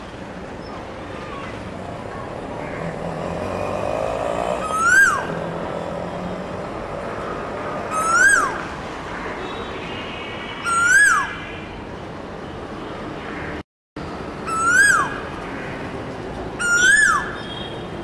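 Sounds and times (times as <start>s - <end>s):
bird whistled call: 10.7s - 11.3s, 16.6s - 17.4s.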